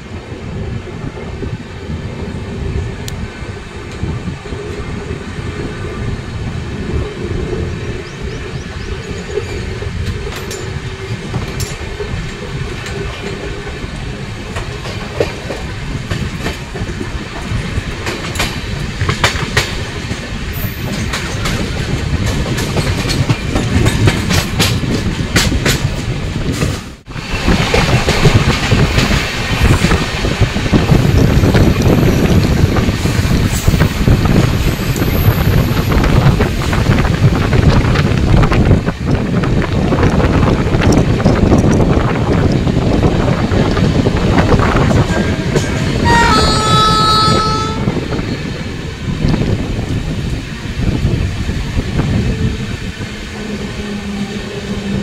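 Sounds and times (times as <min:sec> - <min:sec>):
train rumble: 0:00.0 - 0:55.0
train wheels clattering over rails: 0:00.0 - 0:55.0.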